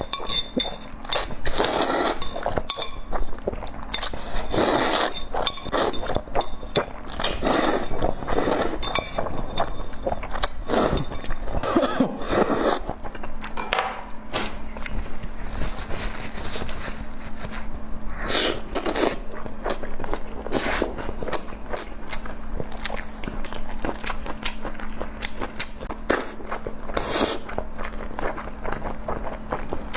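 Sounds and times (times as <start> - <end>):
utensils clinking on dishes: 0.0 - 3.2, 3.9 - 12.0, 13.6 - 14.1
crunching and chewing: 0.0 - 13.6, 18.0 - 29.9.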